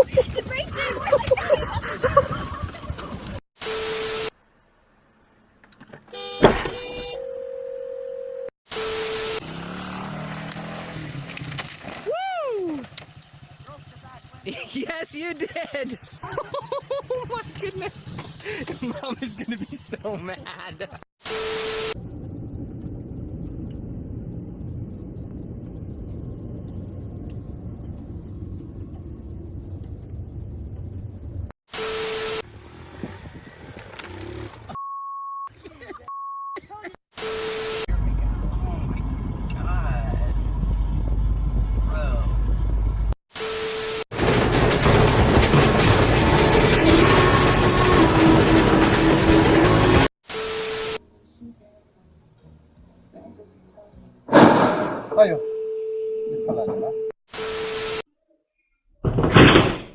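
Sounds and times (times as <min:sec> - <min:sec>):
vehicle engine and road noise: 0:04.3 - 0:07.1, 0:08.7 - 0:15.2, 0:16.8 - 0:20.6, 0:21.8 - 0:34.8, 0:37.2 - 0:43.2, 0:43.8 - 0:50.1
low hum: 0:22.0 - 0:31.5, 0:37.9 - 0:43.2
single steady tone: 0:34.8 - 0:35.5, 0:54.9 - 0:57.6
sudden bang: 0:54.3 - 0:55.4, 0:59.0 - 0:59.9.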